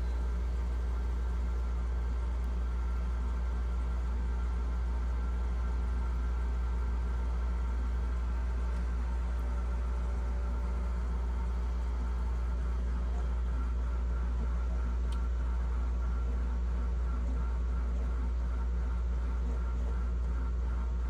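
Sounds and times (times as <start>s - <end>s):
refrigerator fan motor humming: 0.0s - 15.8s.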